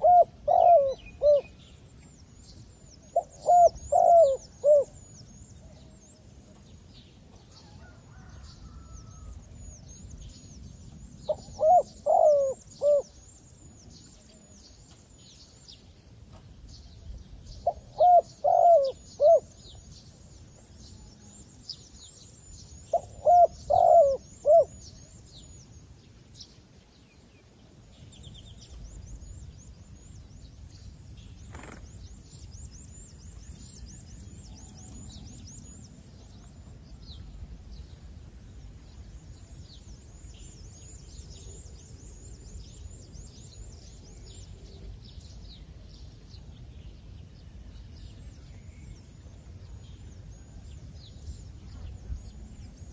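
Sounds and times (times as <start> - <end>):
dove cooing: 0.0 - 1.5, 3.1 - 5.0, 11.3 - 13.1, 17.6 - 19.5, 22.9 - 24.8
faint high-pitched chirping: 0.0 - 26.6.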